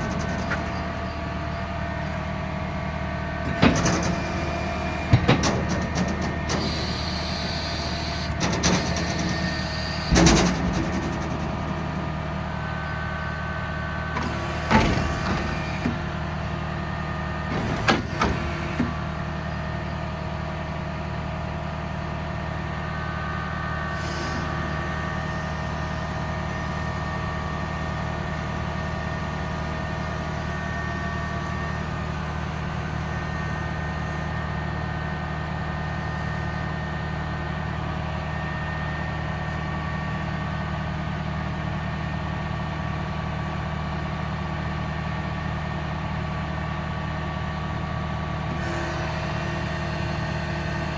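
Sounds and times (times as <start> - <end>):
machinery clunks: 0.0 - 2.2, 3.3 - 12.6, 14.1 - 16.2, 17.5 - 19.0
engine hum and whine: 0.0 - 50.9.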